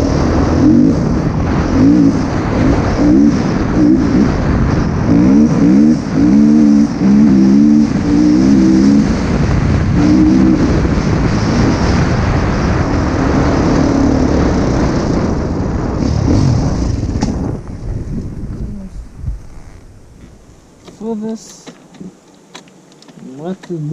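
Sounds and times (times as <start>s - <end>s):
motocross bike engine revving: 0.0s - 20.4s
wind noise: 0.0s - 23.9s.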